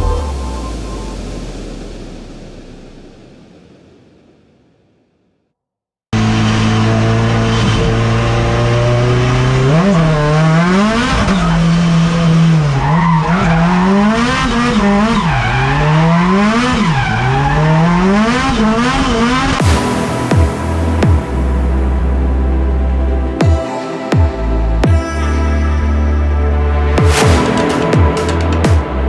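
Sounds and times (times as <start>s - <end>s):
car engine revving: 0.0s - 4.2s, 6.2s - 23.4s.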